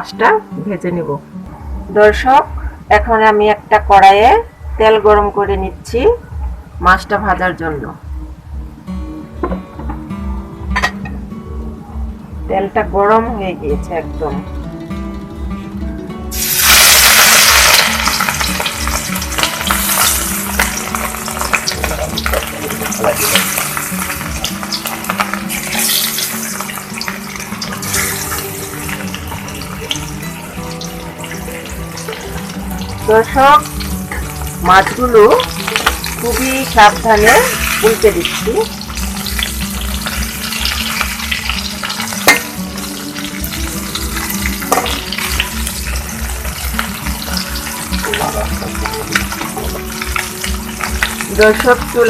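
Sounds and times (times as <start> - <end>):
fish frying in hot oil: 16.3 - 52.0.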